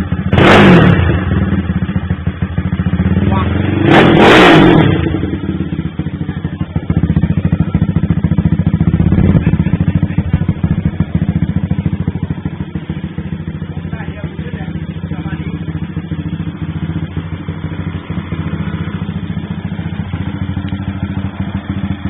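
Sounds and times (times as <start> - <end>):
motorcycle engine puttering: 4.4 - 22.0.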